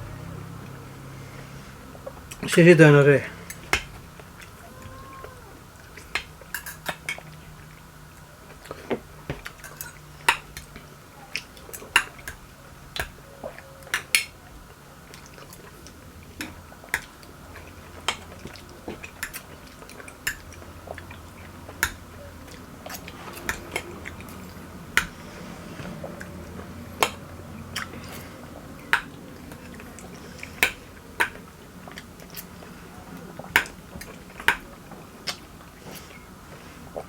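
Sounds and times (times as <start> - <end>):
cutlery scraping plates: 6.5 - 7.4.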